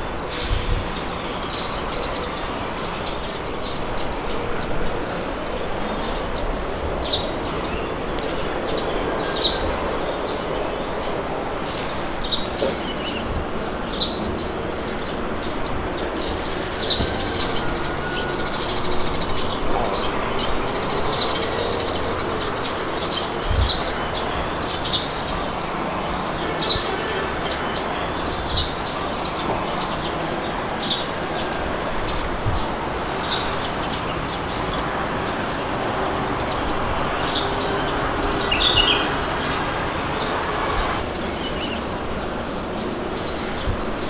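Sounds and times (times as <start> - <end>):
birds chirping: 0.0 - 44.0
steady wind blowing: 0.0 - 44.0.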